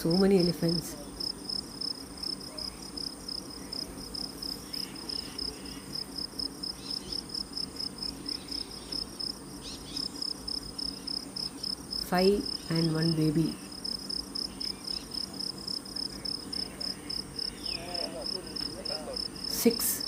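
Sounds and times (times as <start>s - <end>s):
insects chirping: 0.0s - 20.0s
faint bird calls: 16.1s - 19.5s.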